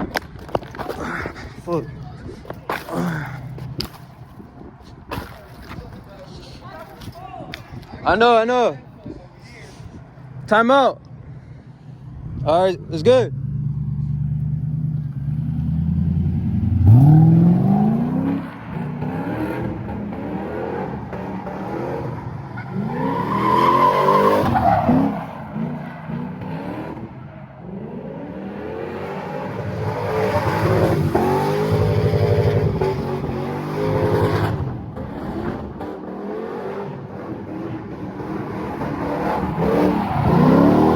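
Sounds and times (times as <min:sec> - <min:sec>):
car engine revving hard: 0:15.3 - 0:27.1, 0:27.7 - 0:40.9.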